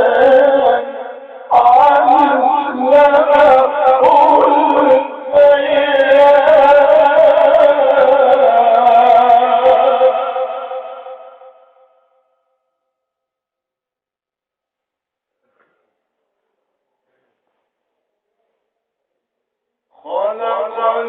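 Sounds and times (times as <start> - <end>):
man reciting melodically: 0.0 - 11.6, 19.9 - 21.0.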